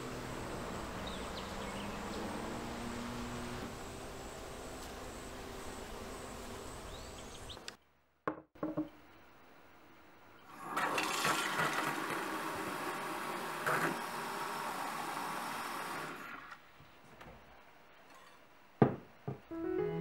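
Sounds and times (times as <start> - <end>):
outdoor background hiss: 0.0 - 20.0
tap water running into jug: 10.7 - 12.8.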